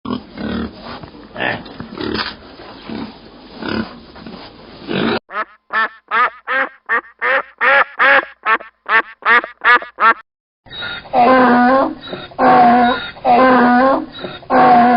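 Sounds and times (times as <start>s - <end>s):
pig grunting: 1.4s - 4.0s
duck quacking: 5.3s - 10.2s.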